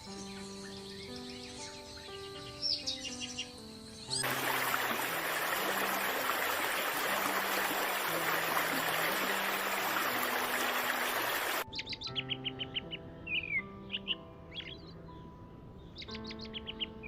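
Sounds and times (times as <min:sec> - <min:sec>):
bird chirping: 0:00.0 - 0:17.0
rushing water: 0:04.2 - 0:11.6.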